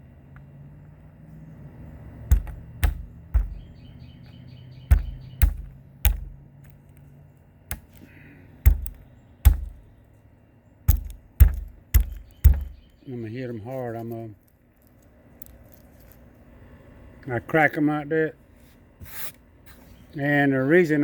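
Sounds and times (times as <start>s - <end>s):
bird chirping: 2.3s - 6.4s, 8.6s - 13.7s.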